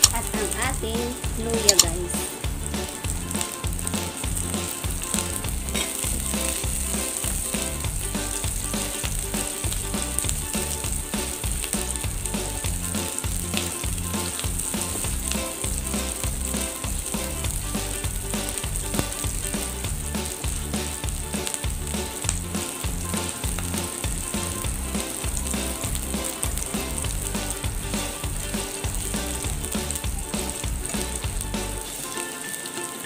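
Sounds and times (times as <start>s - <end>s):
food sizzling in hot oil: 0.0s - 33.0s
spatula stirring in pan: 4.5s - 7.8s.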